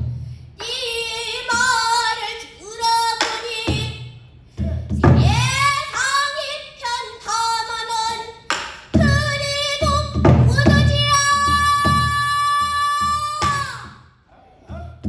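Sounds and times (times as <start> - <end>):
woman singing: 0.6 - 4.2, 5.0 - 14.0
low drum thuds: 3.7 - 5.9, 8.9 - 14.0.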